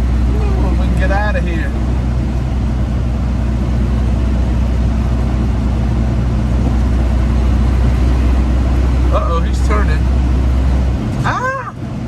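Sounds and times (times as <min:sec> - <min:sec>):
road noise: 0:00.0 - 0:12.0
truck diesel engine drone: 0:00.0 - 0:12.0.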